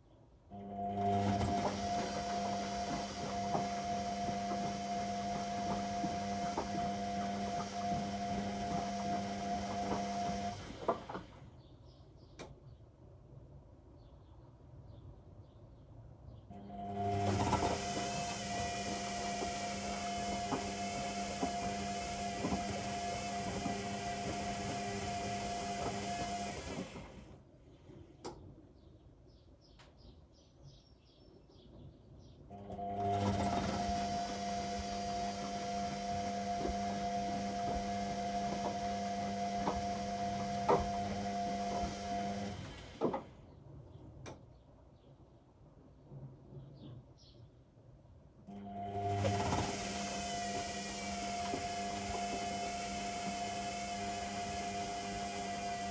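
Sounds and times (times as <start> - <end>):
washing machine motor humming: 0.5 - 11.4, 16.6 - 27.4, 32.5 - 43.3, 48.5 - 55.9.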